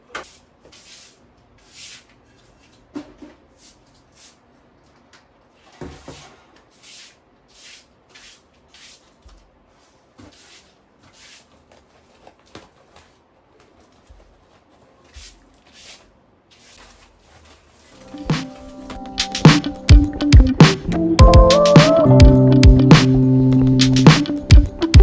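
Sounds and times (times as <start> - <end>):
soft rustling strokes: 6.6 - 19.0.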